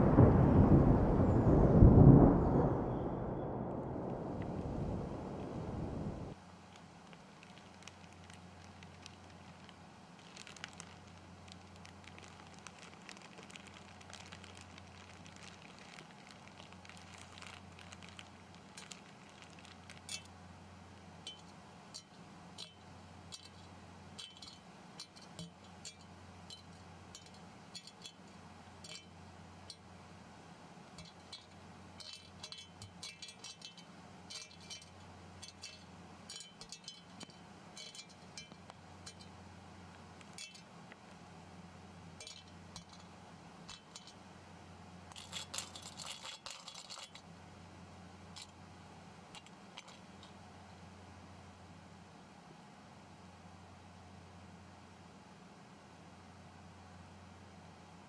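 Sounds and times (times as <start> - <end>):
low steady hum: 0.0 - 46.1
faint clicks and crinkles: 6.6 - 29.8, 45.1 - 47.3, 49.3 - 50.4.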